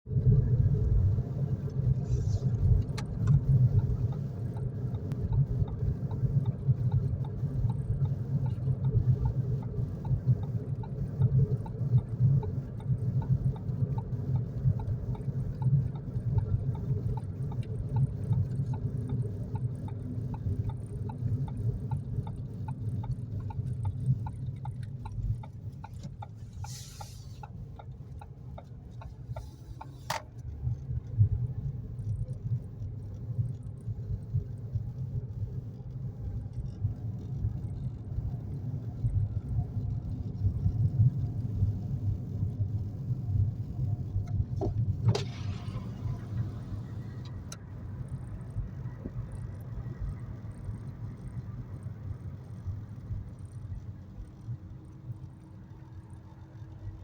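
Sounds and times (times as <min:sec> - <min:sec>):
faint regular ticking: 0:01.3 - 0:45.1
short hiss: 0:26.4 - 0:27.5.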